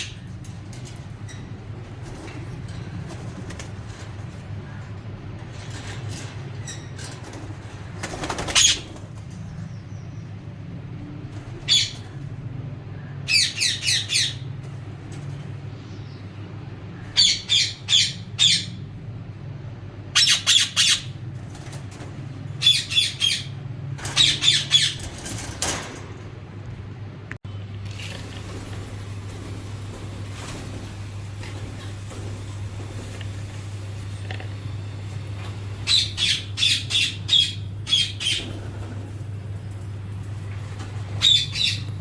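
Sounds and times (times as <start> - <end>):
steady low hum: 0.0 - 42.0
birds giving harsh calls: 6.6 - 10.4, 11.4 - 12.3, 12.9 - 25.4, 28.1 - 42.0.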